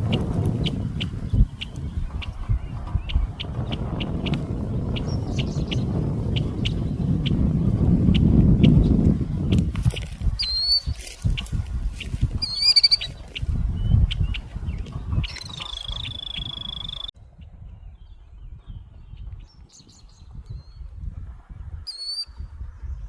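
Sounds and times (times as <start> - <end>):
birds whistling: 0.0 - 7.4, 8.1 - 17.1, 21.9 - 22.4.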